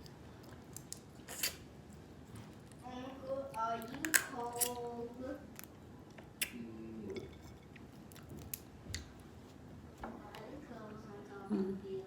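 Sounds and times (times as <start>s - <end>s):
crab shell cracking: 0.0s - 1.6s, 3.8s - 4.8s.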